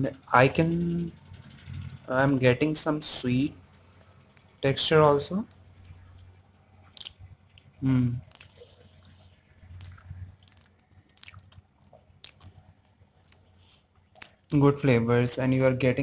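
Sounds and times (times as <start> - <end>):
closed-mouth hum: 0.0 - 14.8
person chewing food: 6.8 - 8.7, 9.6 - 14.6
wet mouth clicks and smacks: 6.9 - 8.6, 9.7 - 14.6.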